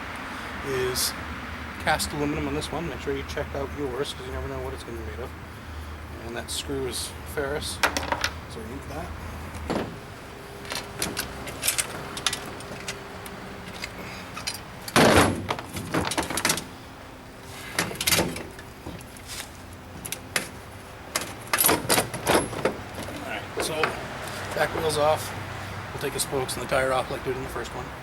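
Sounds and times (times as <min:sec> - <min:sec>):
metal tools clicking and clanking: 0:07.8 - 0:08.4, 0:10.6 - 0:16.7, 0:17.7 - 0:19.1, 0:20.0 - 0:25.0
metal clatter: 0:10.6 - 0:16.7, 0:20.0 - 0:24.0.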